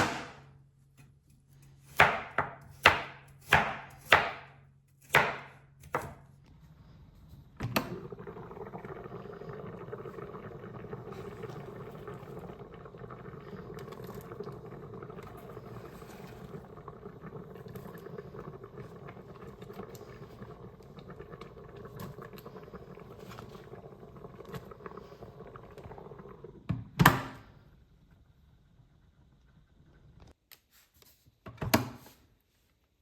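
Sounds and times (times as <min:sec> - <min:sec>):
knife chopping on a board: 0:01.9 - 0:06.2.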